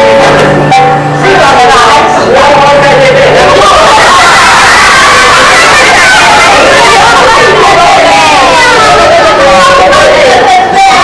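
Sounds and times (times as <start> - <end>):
children shouting: 3.4 - 11.0.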